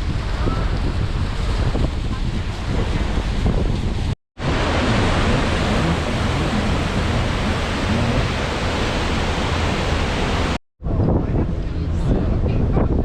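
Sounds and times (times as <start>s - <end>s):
loud rushing noise: 4.4s - 10.6s.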